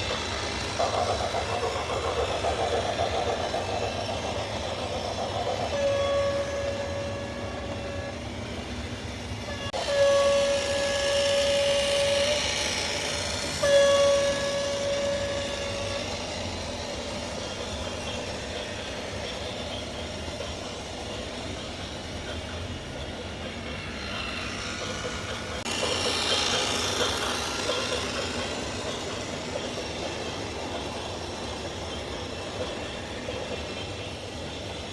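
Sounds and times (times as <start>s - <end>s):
train running noise: 0.0s - 34.9s
train horn blasts: 5.7s - 8.3s, 9.5s - 16.2s.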